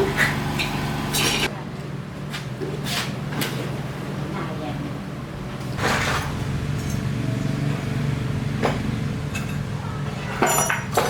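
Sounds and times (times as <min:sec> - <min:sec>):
short noisy scrapes: 0:05.8 - 0:06.4.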